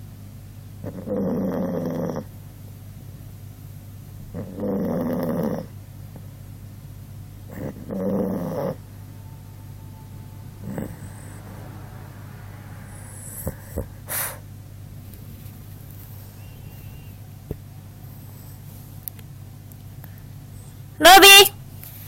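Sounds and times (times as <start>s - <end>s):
dog snoring: 0.8s - 2.4s, 4.2s - 6.3s, 7.4s - 11.7s, 12.7s - 14.5s, 15.1s - 18.8s.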